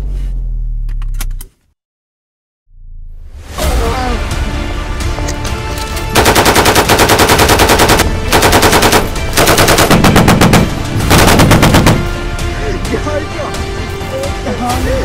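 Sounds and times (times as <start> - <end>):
machine-gun fire bursts: 6.1 - 12.2.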